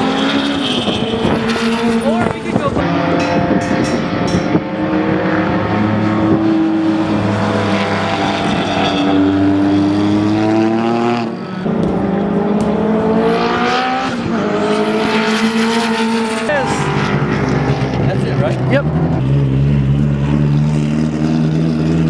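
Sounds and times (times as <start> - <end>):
race car engine accelerating: 4.6 - 22.0.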